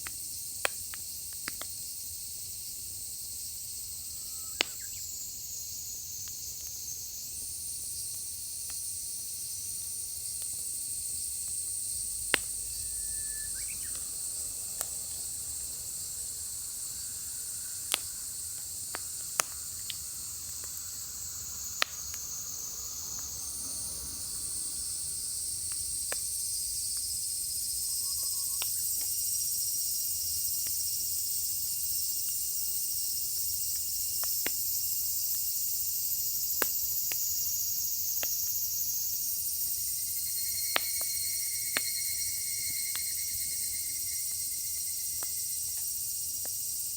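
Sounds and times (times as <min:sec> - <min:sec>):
firewood burning with pops and cracks: 0:00.0 - 0:02.5, 0:04.5 - 0:27.4, 0:28.6 - 0:29.3, 0:31.6 - 0:35.5, 0:36.3 - 0:37.5, 0:38.2 - 0:38.6, 0:40.7 - 0:42.0, 0:45.1 - 0:46.9
high chorus of insects: 0:00.0 - 0:46.9.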